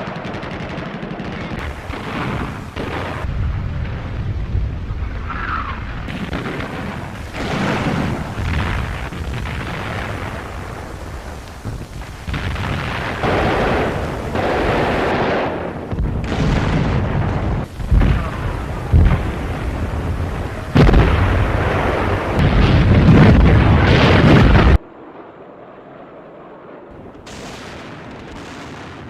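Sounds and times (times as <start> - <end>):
rumble of gunfire: 0.0 - 25.5, 26.4 - 29.0
explosions: 0.0 - 29.0
tank gun shots: 6.1 - 19.4.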